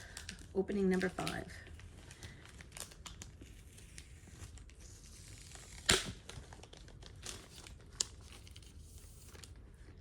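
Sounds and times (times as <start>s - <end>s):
packaging crinkling: 0.0s - 4.8s, 5.4s - 10.0s
packaging tearing: 2.5s - 9.6s.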